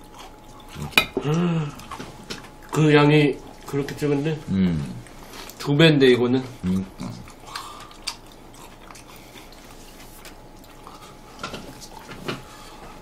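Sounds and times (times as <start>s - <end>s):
people chewing food: 0.0s - 13.0s.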